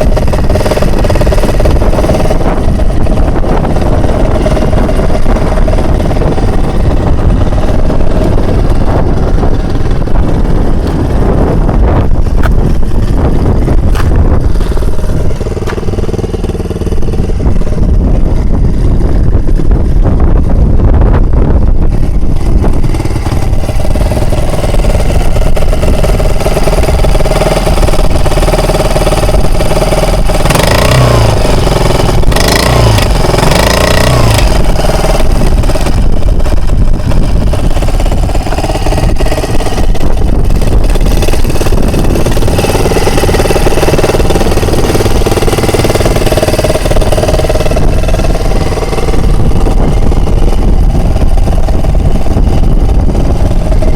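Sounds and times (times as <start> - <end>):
outboard motor running: 0.0 - 53.9.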